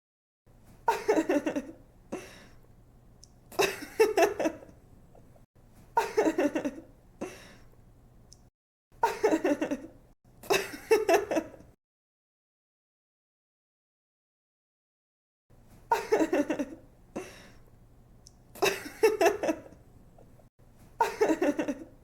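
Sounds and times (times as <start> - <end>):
woman giggling: 0.9 - 1.8, 3.6 - 4.7, 6.0 - 6.9, 9.0 - 9.9, 10.5 - 11.6, 15.9 - 17.3, 18.6 - 19.8, 21.0 - 22.0.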